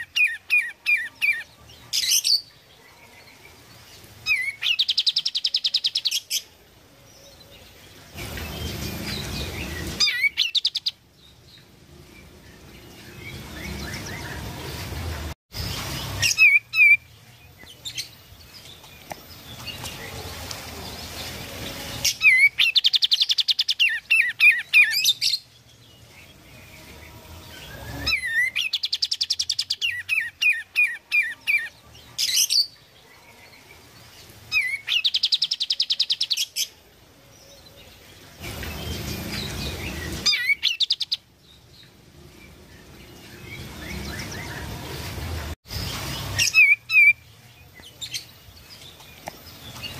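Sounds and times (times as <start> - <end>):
songbird singing chattering notes: 4.2 - 6.5, 7.6 - 14.5, 15.7 - 26.7, 34.3 - 36.6, 38.4 - 49.9.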